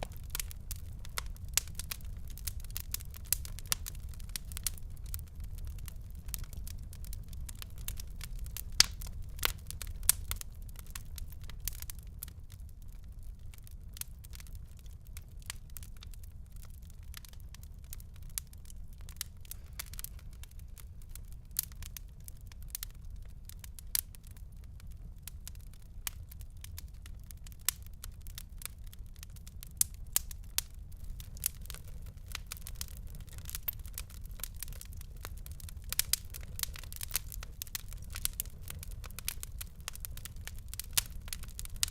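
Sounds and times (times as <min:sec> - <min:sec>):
low rumble of burning: 0:00.0 - 0:41.9
wood fire crackling: 0:00.0 - 0:41.9.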